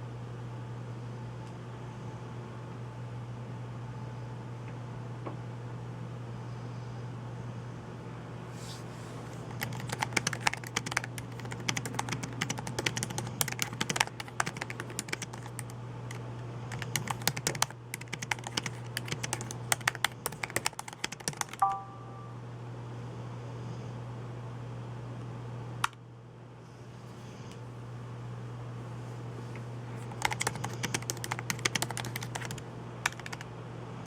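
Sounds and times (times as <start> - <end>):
steady low hum: 0.0 - 34.0
fast typing on keyboard: 9.5 - 21.8, 30.0 - 33.5
brief electronic tone: 21.6 - 22.4.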